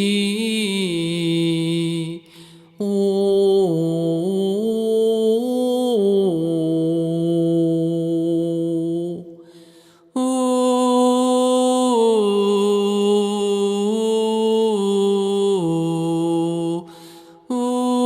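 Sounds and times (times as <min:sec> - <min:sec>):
breath: 0:02.2 - 0:02.8, 0:09.4 - 0:10.2, 0:16.8 - 0:17.5.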